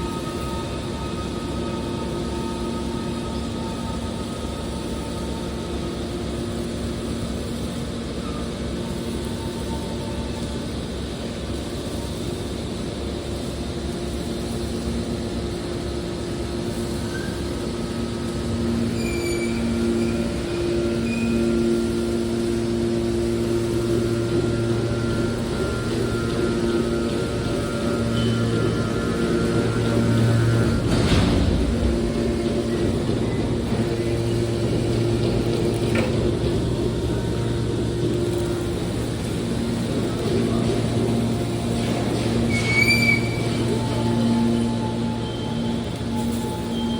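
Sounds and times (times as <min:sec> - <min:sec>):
hydraulic baler humming: 0:00.0 - 0:46.9
high metallic squeals: 0:16.6 - 0:46.9.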